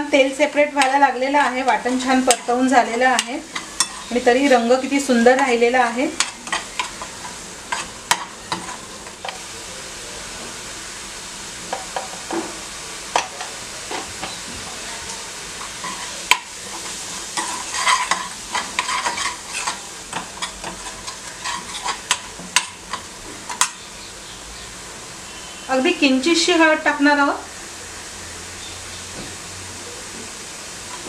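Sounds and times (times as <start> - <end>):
paste sizzling in oil: 0.0 - 31.0
steel spoon clicking and scraping: 3.2 - 4.1, 16.8 - 23.0.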